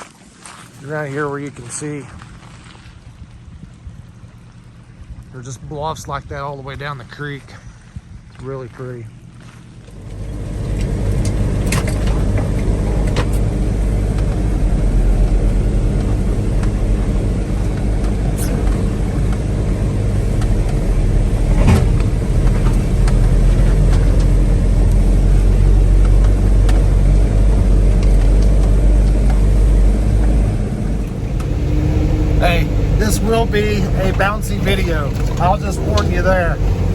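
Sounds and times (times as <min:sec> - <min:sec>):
pickup truck engine running: 0:09.1 - 0:36.9
truck knocking over bumps: 0:09.9 - 0:36.9.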